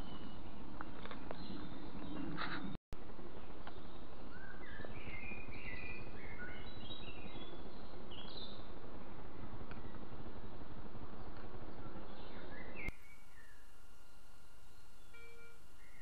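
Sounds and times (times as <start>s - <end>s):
background hiss: 12.9s - 16.0s
songbird singing high notes: 14.6s - 16.0s.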